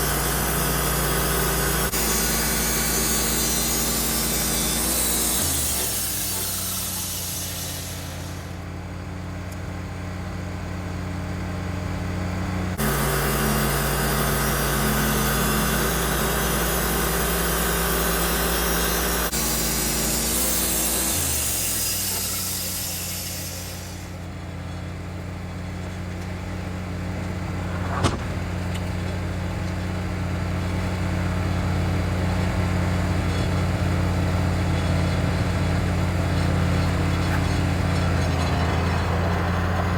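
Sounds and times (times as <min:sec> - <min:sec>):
hiss: 0:00.0 - 0:08.6, 0:12.8 - 0:24.2
sawmill engine running: 0:00.0 - 0:39.9.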